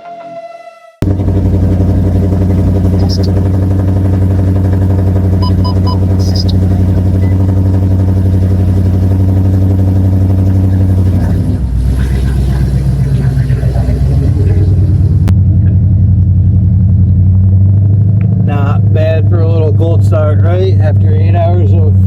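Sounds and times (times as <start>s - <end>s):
car engine fast idle: 1.0s - 17.1s
electronic chime beeps: 5.4s - 6.5s.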